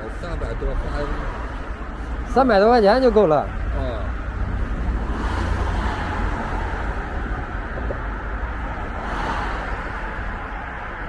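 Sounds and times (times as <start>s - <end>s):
road traffic rumble: 0.0s - 11.0s
vehicles passing: 0.0s - 11.0s.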